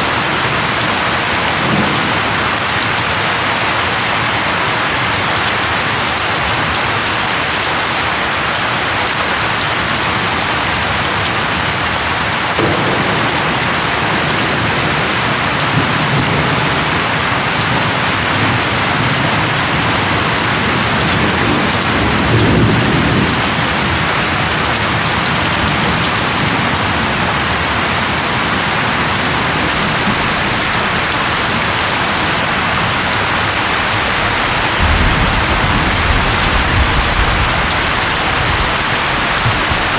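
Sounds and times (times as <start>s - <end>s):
rolling thunder: 0.0s - 3.4s, 12.5s - 39.9s
dense rainfall: 0.0s - 39.9s.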